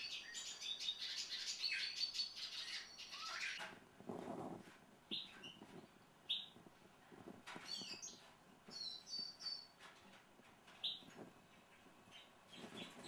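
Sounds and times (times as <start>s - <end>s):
birds chirping: 0.0s - 3.6s, 5.1s - 6.6s, 7.5s - 9.9s, 10.7s - 13.0s
high bird twittering: 0.0s - 3.6s.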